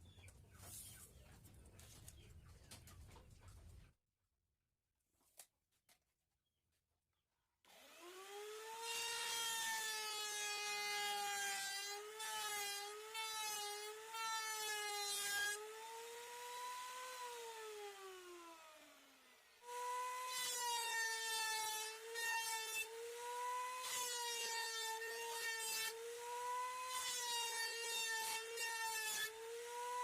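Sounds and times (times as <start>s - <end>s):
power tool cutting wood: 7.7s - 30.0s.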